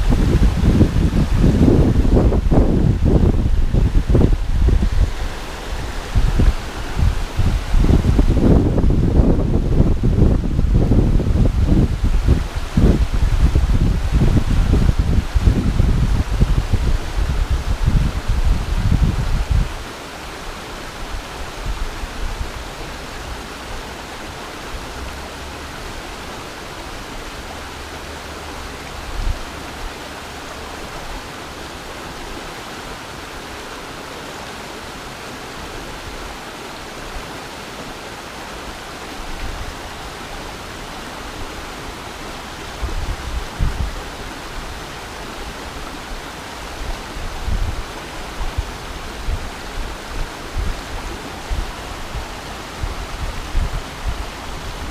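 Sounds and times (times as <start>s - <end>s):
low rumbles: 0.0s - 19.6s
mountain stream flowing: 0.0s - 54.9s.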